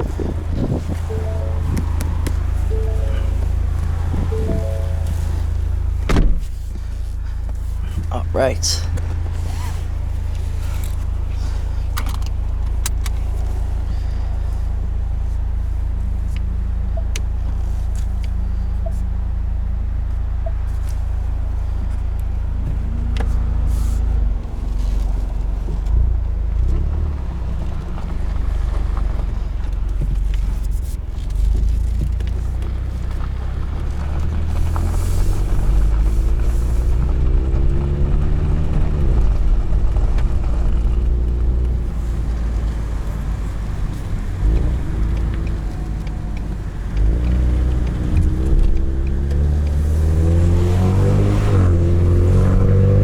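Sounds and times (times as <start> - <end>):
car exhaust droning: 0.0 - 26.5.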